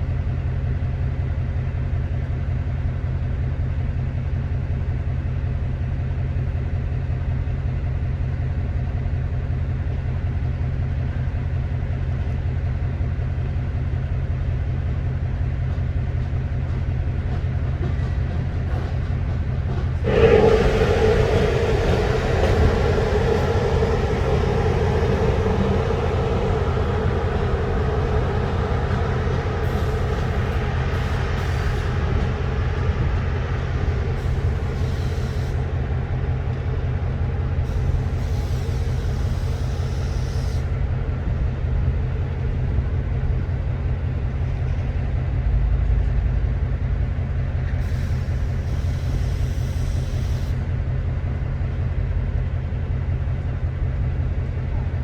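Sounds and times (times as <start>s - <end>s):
electric locomotive low hum: 0.0s - 55.0s
higher tone: 20.0s - 36.2s.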